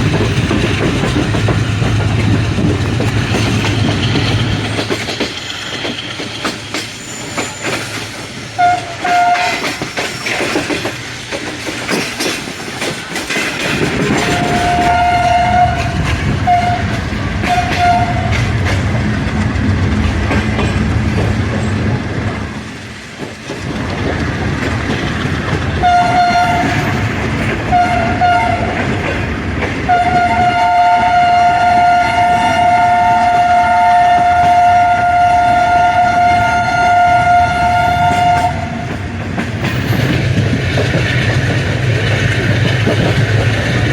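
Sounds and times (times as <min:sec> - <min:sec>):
wheels clicking over rail joints: 0:00.0 - 0:36.7, 0:37.6 - 0:43.9
train running rumble: 0:00.0 - 0:43.9
locomotive horn blasts: 0:08.6 - 0:09.8, 0:14.2 - 0:18.4, 0:25.8 - 0:26.9, 0:27.7 - 0:28.8, 0:29.9 - 0:38.9.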